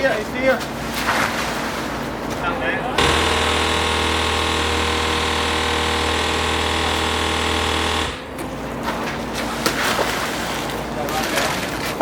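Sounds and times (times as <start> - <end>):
motorised tool buzzing: 3.0 - 8.3.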